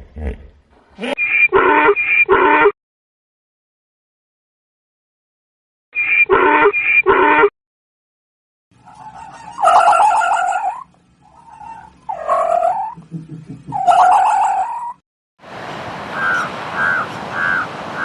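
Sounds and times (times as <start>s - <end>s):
longer animal calls: 8.9s - 13.0s, 13.7s - 15.0s, 16.1s - 18.0s.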